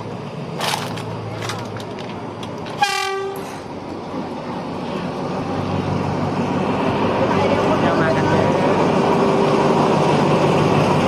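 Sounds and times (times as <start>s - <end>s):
train running noise: 0.0s - 11.0s
train horn blast: 2.8s - 3.6s.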